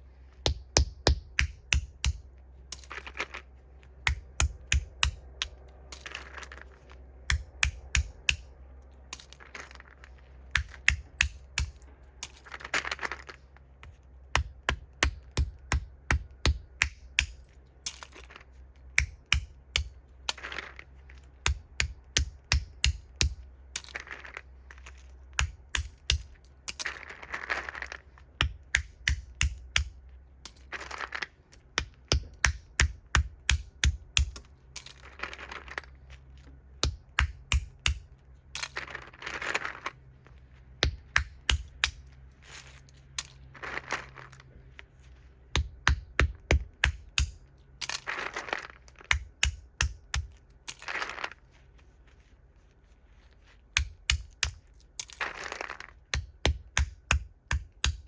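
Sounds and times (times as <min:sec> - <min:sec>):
nut shells cracking: 0:01.3 - 0:13.6, 0:14.4 - 0:36.2, 0:36.8 - 0:40.0, 0:40.8 - 0:44.5, 0:45.5 - 0:51.4, 0:53.8 - 0:58.0
rustling: 0:26.3 - 0:28.4, 0:38.0 - 0:45.5, 0:50.3 - 0:56.1.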